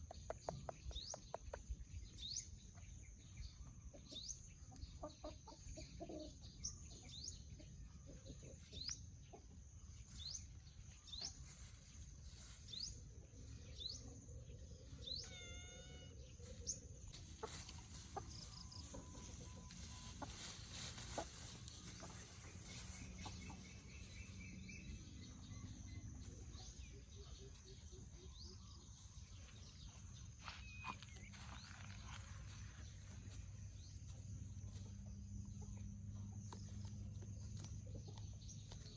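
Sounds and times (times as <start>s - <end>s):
hens clucking: 4.0s - 6.4s, 15.3s - 28.4s
low background noise: 7.5s - 38.9s.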